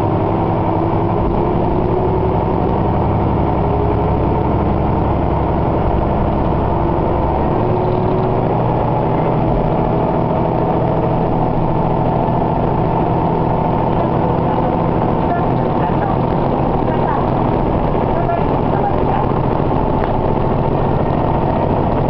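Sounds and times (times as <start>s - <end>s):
railcar engine drone: 0.0s - 22.0s.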